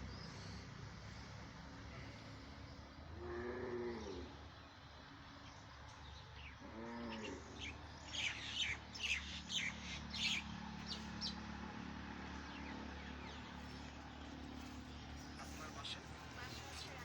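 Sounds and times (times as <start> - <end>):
birds chirping: 5.4 - 17.0.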